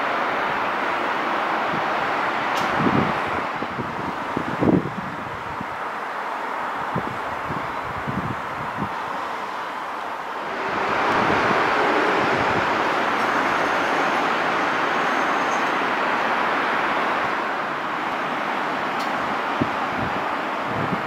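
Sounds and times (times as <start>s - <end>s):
train wheels rushing on track: 0.0s - 21.0s.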